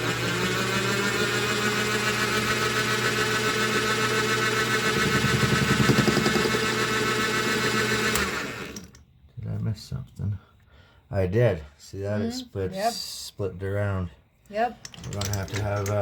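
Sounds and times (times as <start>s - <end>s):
lathe motor whining: 0.0s - 9.0s.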